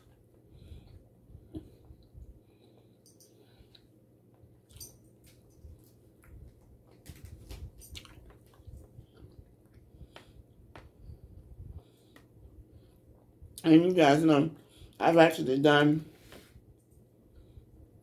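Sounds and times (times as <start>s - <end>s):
faint chewing: 0.8s - 10.9s.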